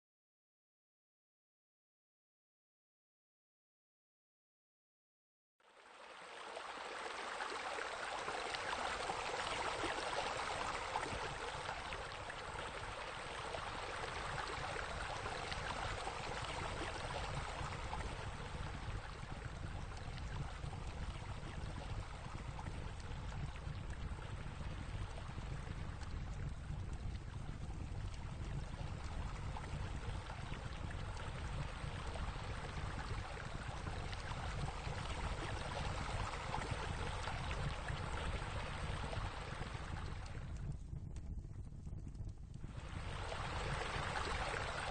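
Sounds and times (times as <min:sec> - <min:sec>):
flowing water rushing and splashing: 0:05.7 - 0:26.9, 0:28.0 - 0:40.3, 0:42.8 - 0:44.9.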